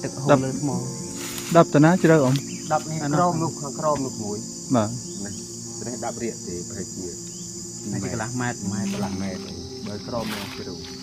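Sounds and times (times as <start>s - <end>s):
people talking: 0.0s - 7.2s, 7.8s - 11.0s
insects chirping: 0.0s - 11.0s.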